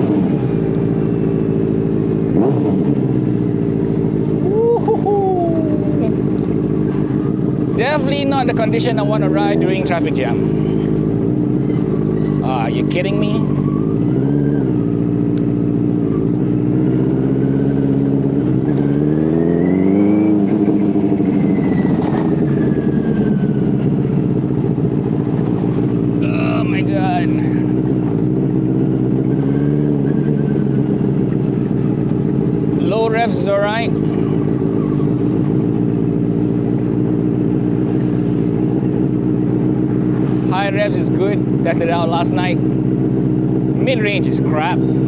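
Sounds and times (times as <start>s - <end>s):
motorcycle engine revving: 0.0s - 45.0s.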